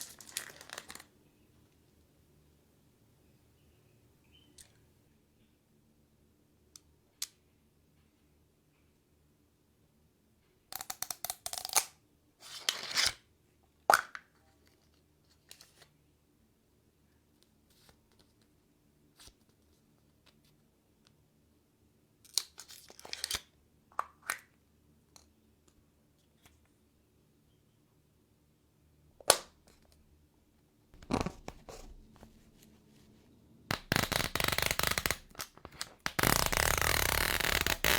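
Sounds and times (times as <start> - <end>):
plastic packaging tearing: 33.7 - 37.9.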